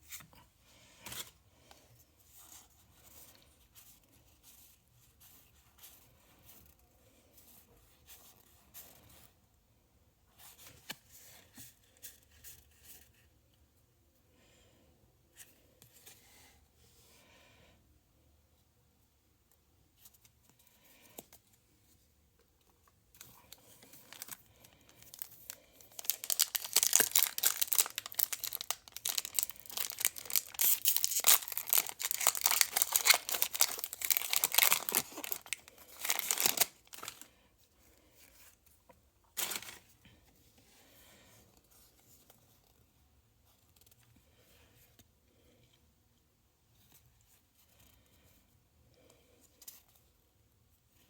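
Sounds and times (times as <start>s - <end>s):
plastic packaging crinkling: 23.6s - 37.3s, 39.4s - 39.9s.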